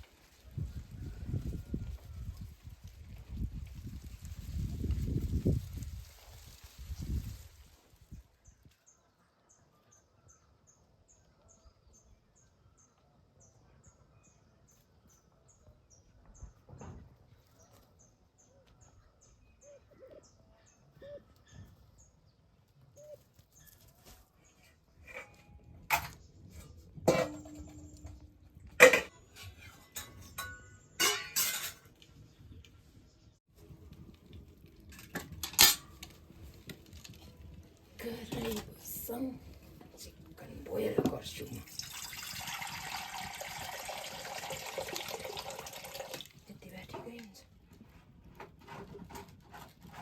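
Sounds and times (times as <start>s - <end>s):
metal pots clattering: 25.0s - 32.0s, 34.8s - 36.2s.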